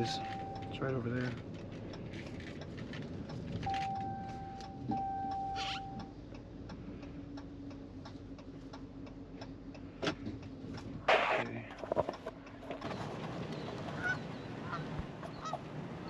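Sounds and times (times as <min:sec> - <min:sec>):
light clicking ticks: 0:00.1 - 0:10.9
electronic tone: 0:03.7 - 0:06.0.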